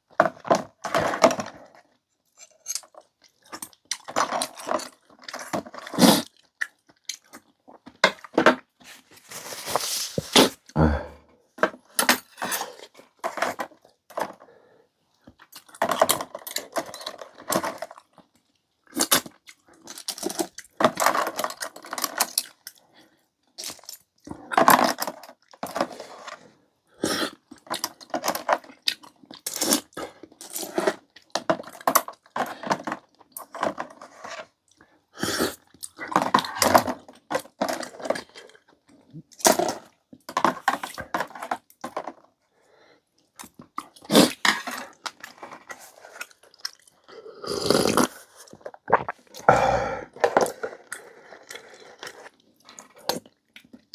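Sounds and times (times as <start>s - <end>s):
chewing and slurping noodles: 2.4s - 8.3s, 43.4s - 53.8s.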